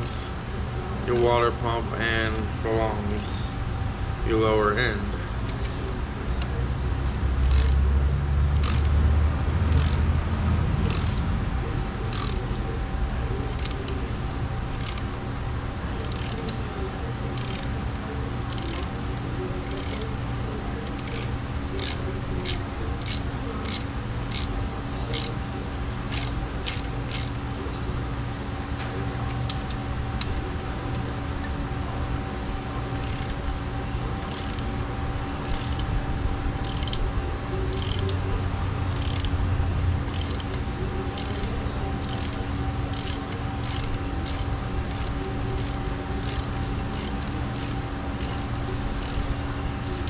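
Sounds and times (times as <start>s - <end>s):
steady low hum: 0.0s - 50.0s
ratchet wrench clicking: 7.4s - 7.9s, 8.6s - 9.0s, 9.7s - 10.1s, 10.8s - 11.2s, 12.1s - 12.5s, 13.5s - 14.0s, 14.7s - 15.2s, 16.0s - 16.6s, 17.2s - 17.8s, 18.5s - 19.0s, 19.7s - 20.2s, 20.8s - 24.5s, 25.1s - 25.4s, 26.1s - 27.4s, 32.9s - 33.5s, 34.2s - 34.7s, 35.4s - 35.9s, 36.6s - 37.0s, 37.7s - 38.2s, 38.9s - 39.4s, 40.0s - 40.6s, 41.2s - 50.0s.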